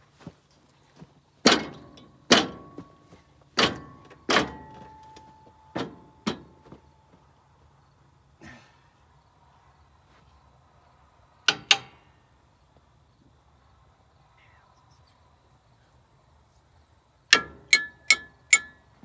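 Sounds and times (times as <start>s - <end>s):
sharp metallic knocks: 1.4s - 3.0s, 3.6s - 6.6s, 17.3s - 18.8s.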